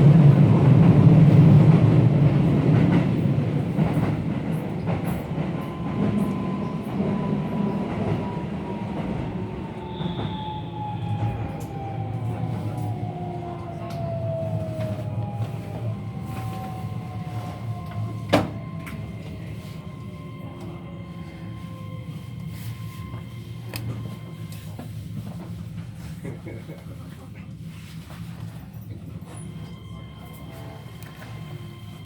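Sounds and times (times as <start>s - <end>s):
electric train inverter whine: 3.1s - 25.6s.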